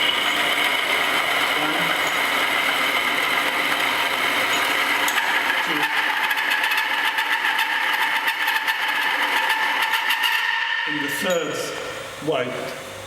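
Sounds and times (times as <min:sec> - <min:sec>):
metal on metal squeal: 0:04.5 - 0:11.6.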